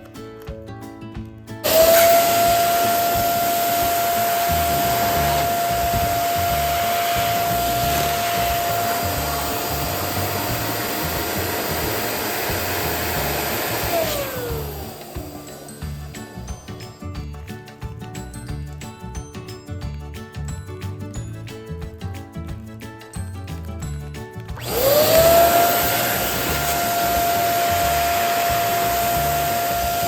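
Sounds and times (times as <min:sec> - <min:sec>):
electric balloon pump motor whine: 0:01.6 - 0:16.5, 0:24.6 - 0:30.0.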